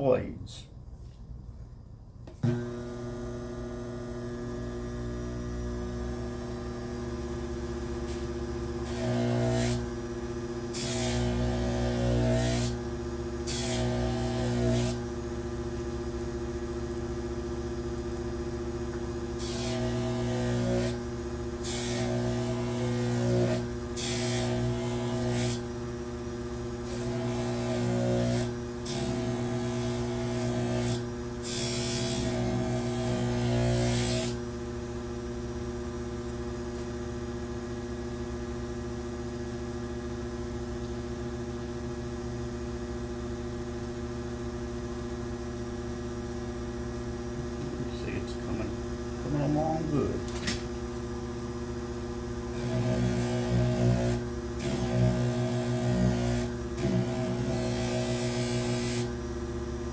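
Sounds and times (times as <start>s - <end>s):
polishing machine motor humming: 52.6s - 59.1s.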